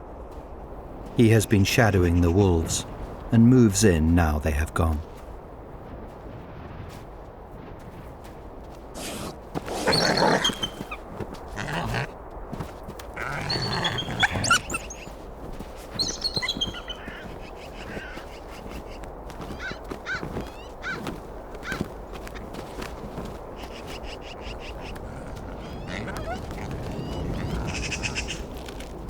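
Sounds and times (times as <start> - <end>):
harsh animal calls: 9.0 - 12.2, 13.2 - 15.2, 15.9 - 28.7.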